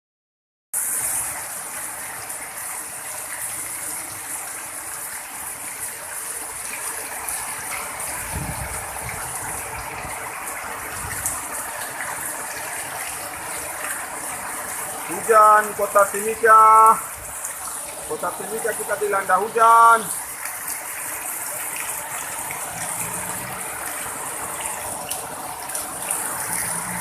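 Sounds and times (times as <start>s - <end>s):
heavy rain pouring: 0.8s - 27.0s.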